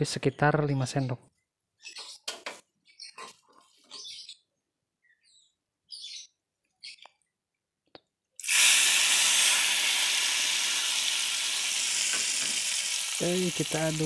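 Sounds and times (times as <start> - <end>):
hot oil sizzling on chilies: 8.4 - 14.0.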